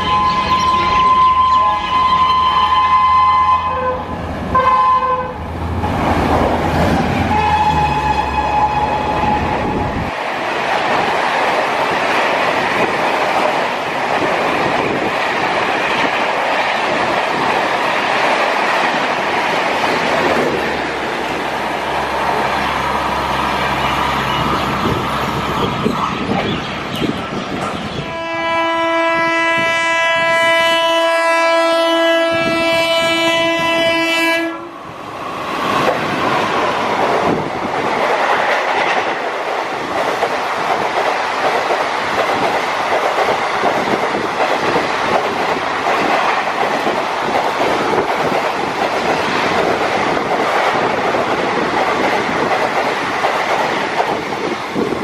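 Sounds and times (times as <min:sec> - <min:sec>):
locomotive horn blast: 0:00.0 - 0:05.5, 0:07.3 - 0:09.8, 0:28.0 - 0:34.8
train coaches rolling by: 0:00.0 - 0:55.0.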